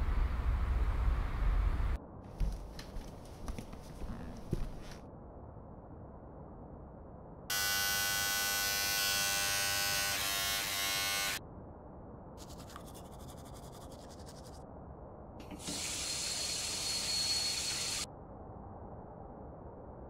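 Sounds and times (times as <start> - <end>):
electric toothbrush buzzing: 7.5 - 11.4, 15.6 - 18.1
rhythmic scrubbing of brushing: 12.4 - 14.6.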